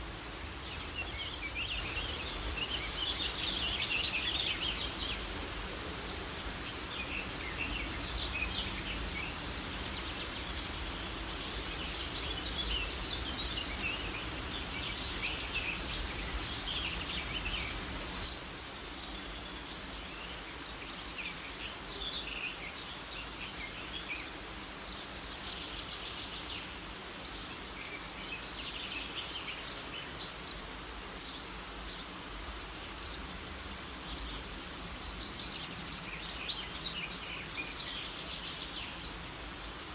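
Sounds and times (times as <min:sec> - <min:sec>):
small birds chirping: 0:00.0 - 0:30.6.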